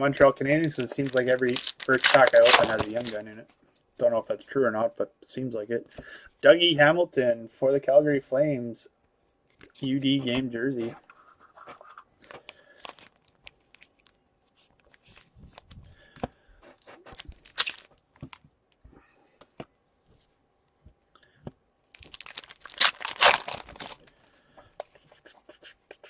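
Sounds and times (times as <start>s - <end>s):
card pack wrapper tearing: 0.5s - 3.3s, 17.1s - 18.4s, 21.9s - 24.3s.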